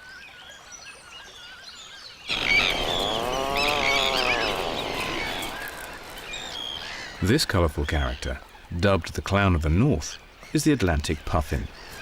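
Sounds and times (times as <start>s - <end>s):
birds calling: 1.8s - 12.0s
long low rising and falling call: 2.3s - 7.2s
steady rushing noise: 2.3s - 7.2s.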